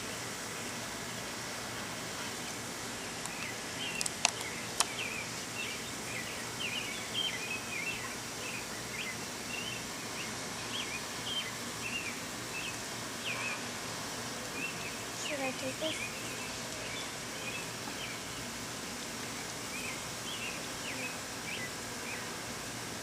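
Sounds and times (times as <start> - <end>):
outdoor background hum: 0.0 - 23.0
songbird chirping: 3.0 - 13.7, 14.5 - 18.6, 19.2 - 22.3
sharp clicks: 3.2 - 5.0.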